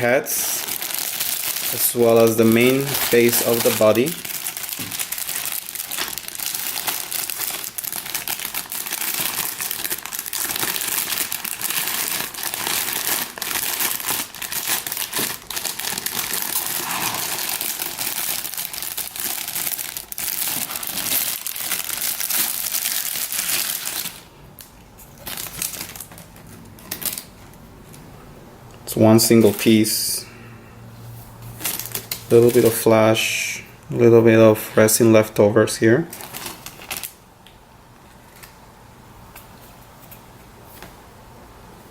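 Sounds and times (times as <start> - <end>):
plastic packaging crinkling: 0.0 - 28.0, 31.5 - 33.0, 36.1 - 37.2.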